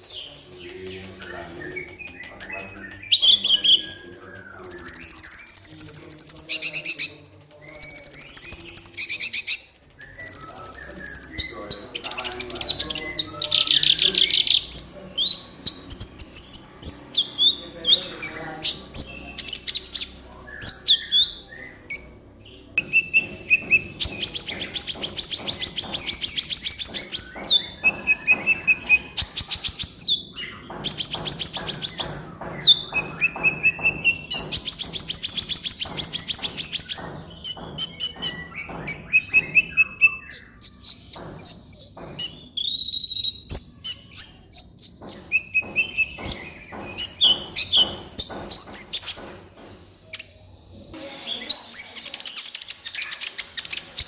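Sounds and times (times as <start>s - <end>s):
fast bird trills: 0.0s - 22.2s, 22.9s - 41.1s
bird singing chirps and whistles: 0.0s - 49.2s, 50.9s - 54.0s.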